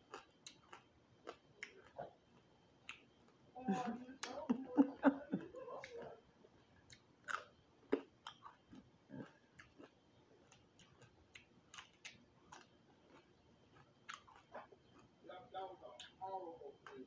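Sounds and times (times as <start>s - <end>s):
chewing crispy food: 0.0s - 17.0s
biting lettuce: 6.9s - 15.1s.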